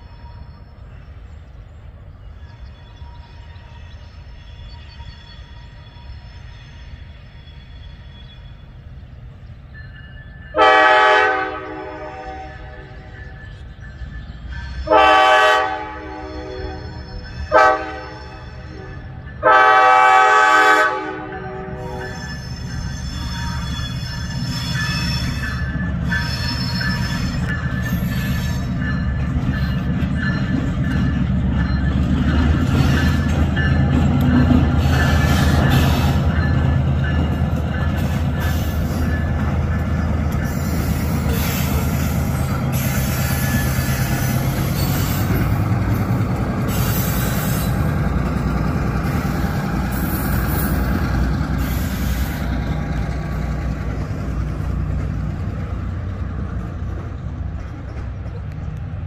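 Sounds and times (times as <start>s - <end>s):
freight train rumbling: 0.0s - 59.0s
wheels clacking over rails: 24.8s - 59.0s.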